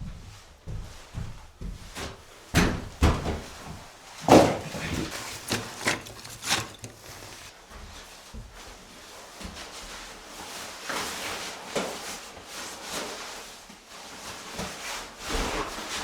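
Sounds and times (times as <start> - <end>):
sharp knocks and clunks: 2.6 - 7.5.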